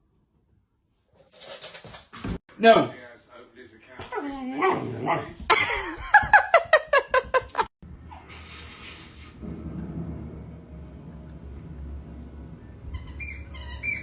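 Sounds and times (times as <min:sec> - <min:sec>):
hiss: 0:08.2 - 0:09.4
low steady hum: 0:09.4 - 0:13.1.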